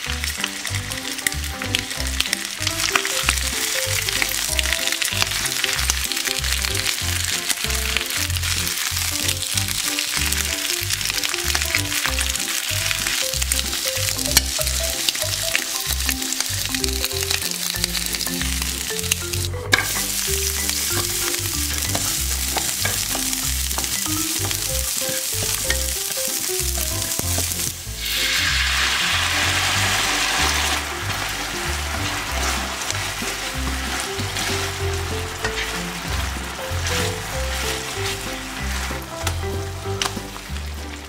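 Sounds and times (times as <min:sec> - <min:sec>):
oil sizzling in a frying pan: 0:00.0 - 0:41.0
sauce bubbling: 0:00.0 - 0:41.0.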